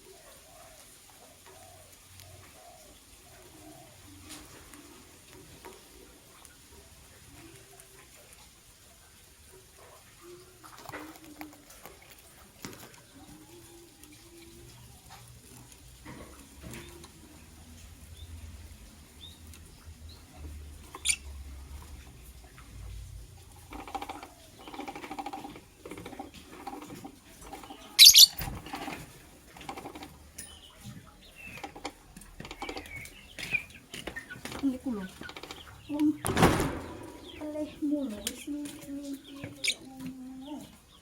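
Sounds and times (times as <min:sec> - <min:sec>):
soft bird sounds: 0:00.0 - 0:41.0
bird shrill calls: 0:28.0 - 0:28.5.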